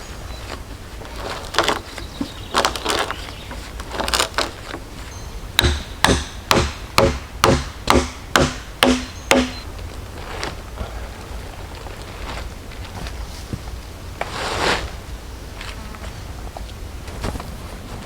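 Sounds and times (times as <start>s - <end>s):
hand tool striking wood: 5.4s - 9.6s.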